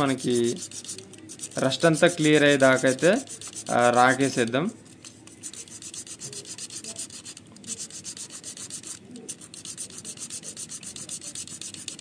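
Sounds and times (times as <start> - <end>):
sandpaper rubbing metal: 0.0 - 4.4, 5.3 - 12.0.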